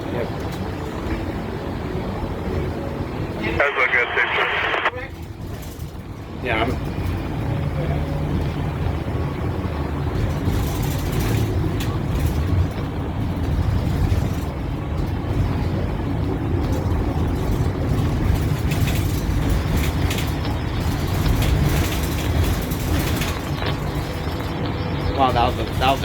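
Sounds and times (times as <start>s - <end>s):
bus engine drone: 0.0s - 26.0s
short rattles: 16.6s - 26.0s.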